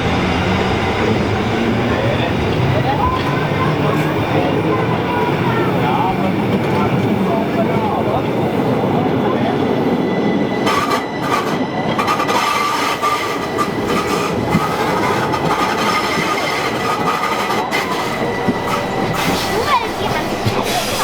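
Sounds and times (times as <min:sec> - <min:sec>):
high wheel squeal: 0:09.8 - 0:21.0
train wheels on rail clicking: 0:10.5 - 0:21.0.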